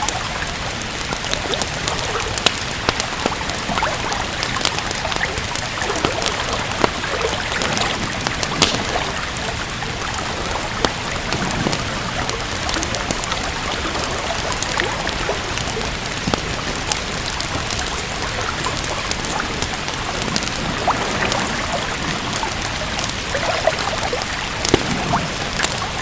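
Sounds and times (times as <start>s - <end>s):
steady rain hissing: 0.0s - 26.0s
wood fire crackling: 0.0s - 26.0s.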